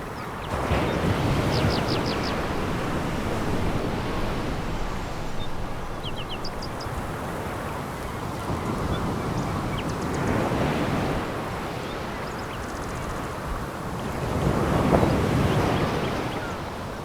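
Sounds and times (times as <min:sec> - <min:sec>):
waves washing over pebble beach: 0:00.4 - 0:11.6.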